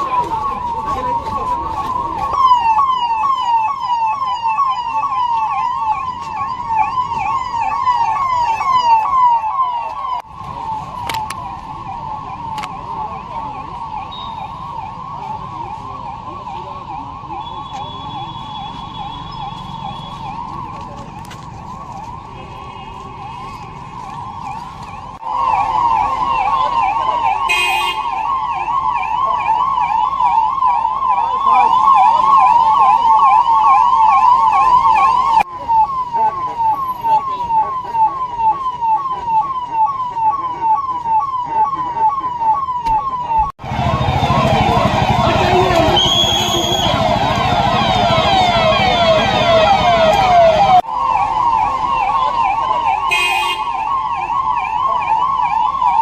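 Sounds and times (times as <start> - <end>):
electronic siren warbling: 28.2 - 53.0.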